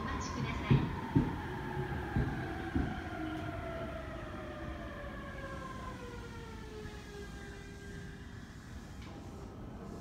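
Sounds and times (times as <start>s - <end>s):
train wheels knocking: 0.4s - 3.2s.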